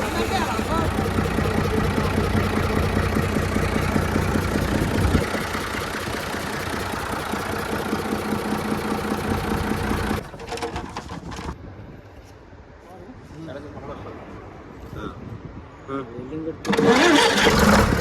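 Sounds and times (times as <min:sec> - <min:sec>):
diesel engine running: 0:00.0 - 0:10.3.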